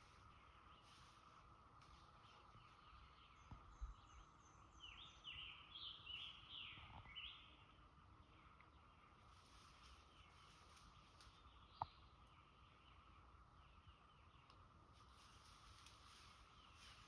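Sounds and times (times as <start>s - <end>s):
bird chirping: 2.2s - 7.6s.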